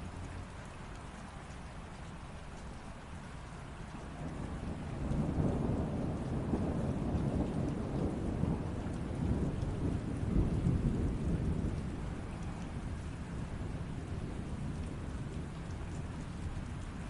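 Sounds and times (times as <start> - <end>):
steady rain falling: 0.0 - 17.0
rolling thunder rumble: 3.8 - 17.0.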